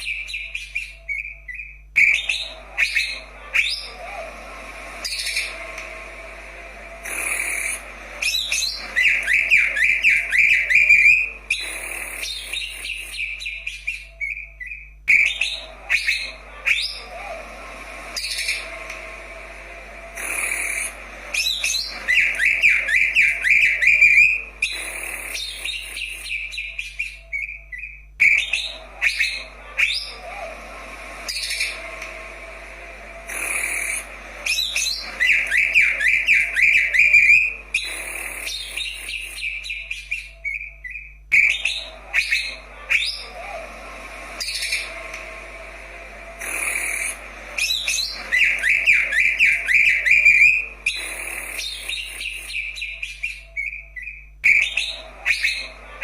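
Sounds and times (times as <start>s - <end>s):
bird singing whistled chirps: 0.0s - 4.2s, 7.0s - 17.4s, 20.2s - 30.5s, 33.3s - 43.6s, 46.4s - 56.0s
rapid bird trill: 0.0s - 32.4s, 33.2s - 56.0s.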